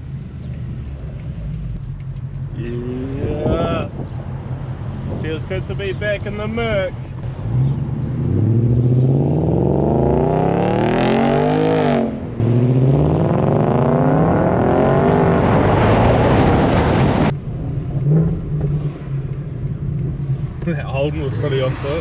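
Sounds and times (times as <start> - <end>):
car engine accelerating hard: 7.2 - 22.0.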